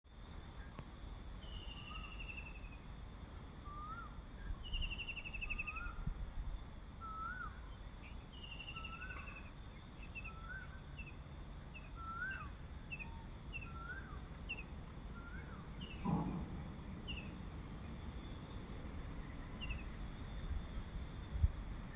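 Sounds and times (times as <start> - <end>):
low background rumble: 0.2 - 21.9
birds calling: 13.7 - 20.8.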